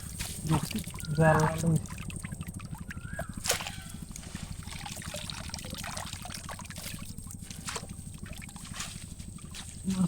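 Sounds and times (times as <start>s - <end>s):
water trickling: 0.4s - 9.9s
sharp splashes: 1.8s - 8.9s.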